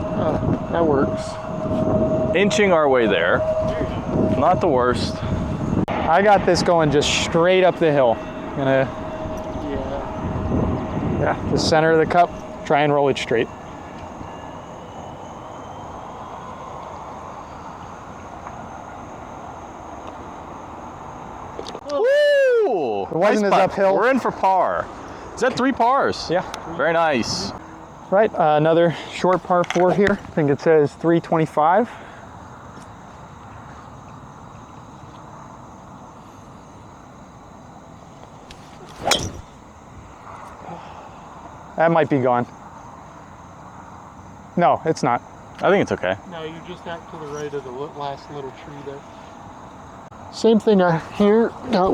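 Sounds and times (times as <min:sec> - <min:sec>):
low even rumble: 0:00.0 - 0:17.6
faint high steady tone: 0:00.0 - 0:19.0
outdoor background noise: 0:00.0 - 0:51.9
golf club striking ball: 0:38.9 - 0:39.6.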